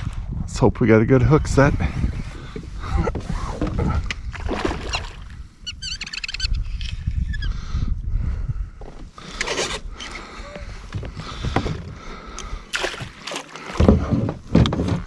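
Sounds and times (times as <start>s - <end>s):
water splashing: 4.3s - 5.4s, 12.4s - 14.2s
kayak knocks and clicks: 8.9s - 15.0s.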